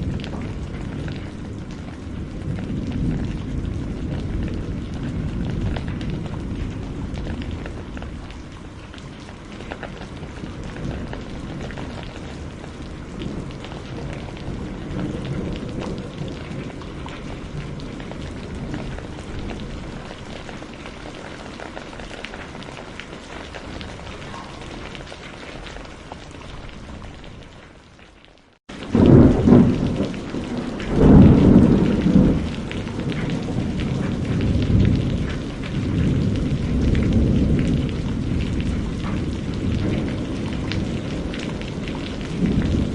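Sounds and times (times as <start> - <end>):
rolling thunder: 0.0 - 27.6, 28.7 - 42.9
steady rain: 0.0 - 42.9.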